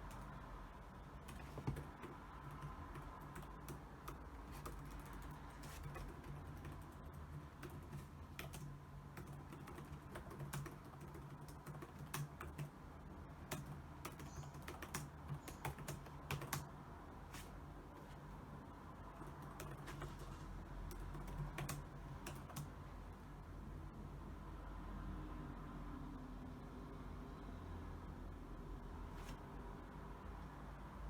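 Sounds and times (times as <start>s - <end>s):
typing on keyboard: 0.0s - 0.4s, 1.0s - 16.8s, 19.2s - 22.8s
faint low hum: 0.0s - 31.0s.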